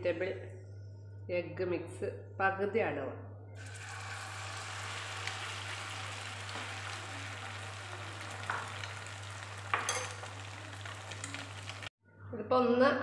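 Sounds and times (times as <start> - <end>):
omelette sizzling in butter: 3.6 - 11.9.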